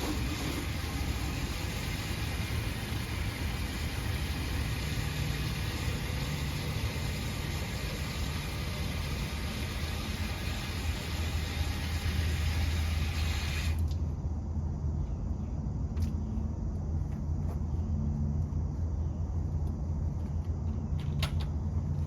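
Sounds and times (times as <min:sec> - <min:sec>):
continuous hiss: 0:00.0 - 0:22.0
machine low hum: 0:00.0 - 0:22.0.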